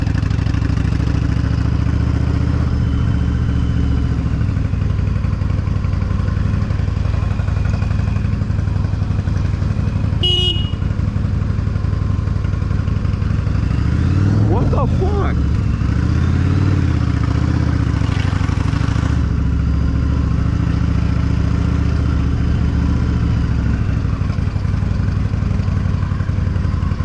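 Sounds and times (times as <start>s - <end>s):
motorcycle engine running: 0.0s - 27.0s
short horn beep: 10.2s - 10.9s.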